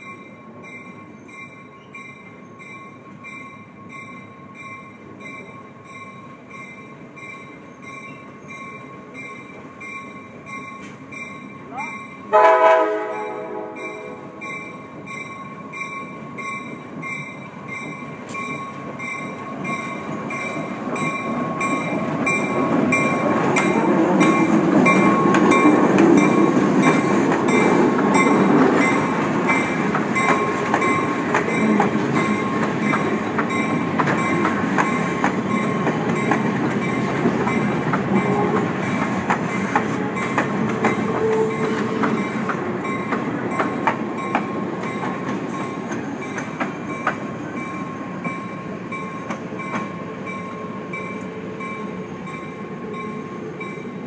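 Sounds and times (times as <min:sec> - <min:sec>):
diesel locomotive passing: 0:00.0 - 0:54.0
train wheels clicking: 0:14.5 - 0:54.0.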